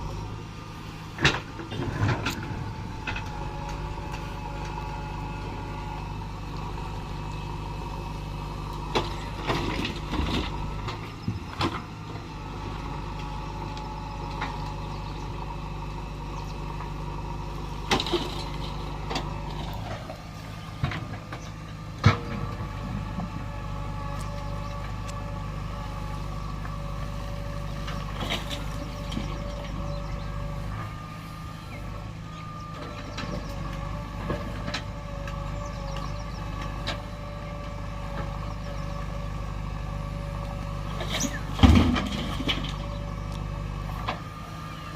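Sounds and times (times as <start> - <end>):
diesel engine running: 0.0 - 44.9
machine knocks and clanks: 41.5 - 42.8.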